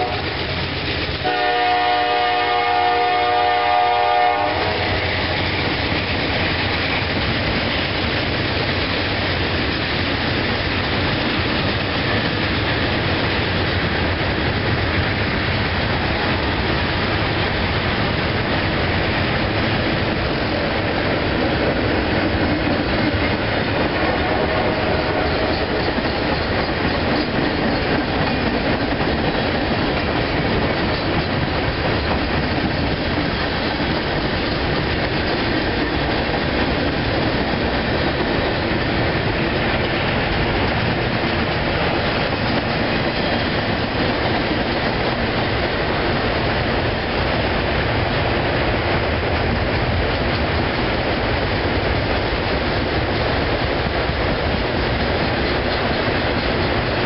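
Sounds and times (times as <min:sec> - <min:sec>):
steel wheels on rail: 0:00.0 - 0:57.0.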